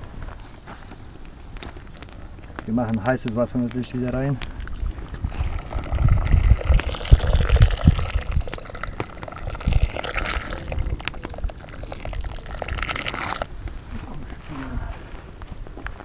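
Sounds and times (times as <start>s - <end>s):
water pouring into a pot: 3.8s - 13.5s.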